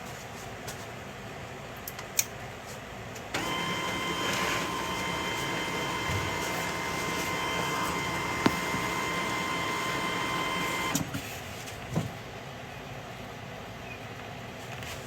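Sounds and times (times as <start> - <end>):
printer motor whine: 3.3 - 11.1
printer mechanism click: 3.4 - 11.1.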